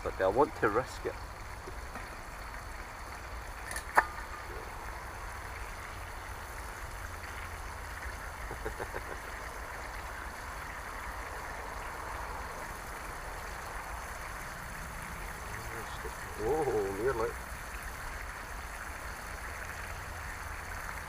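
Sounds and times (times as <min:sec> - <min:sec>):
sharp crack: 0:03.7 - 0:04.5.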